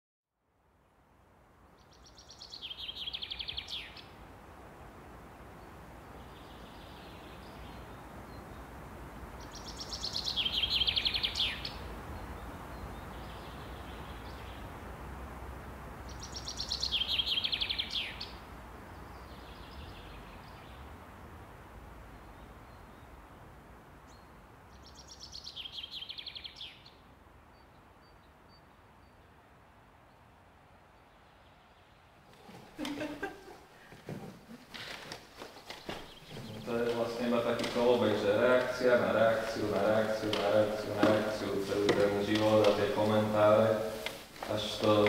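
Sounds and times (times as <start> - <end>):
faint bird song: 0.4 - 14.9, 16.0 - 21.2, 22.0 - 45.0
low background noise: 0.4 - 45.0
songbird trilling: 1.9 - 4.1, 9.4 - 14.6, 16.1 - 18.4, 35.7 - 43.7.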